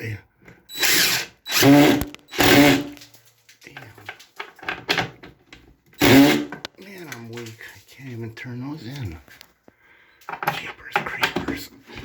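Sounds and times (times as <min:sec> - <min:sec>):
person speaking: 0:00.0 - 0:00.3, 0:06.6 - 0:09.4, 0:10.4 - 0:12.0
cordless screw gun driving screws: 0:00.7 - 0:03.0, 0:06.0 - 0:06.5.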